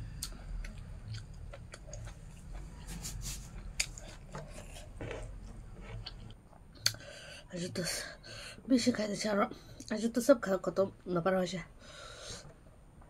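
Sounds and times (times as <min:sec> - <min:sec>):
person chewing food: 0:00.0 - 0:07.2
mouth clicks and smacks: 0:06.1 - 0:07.0.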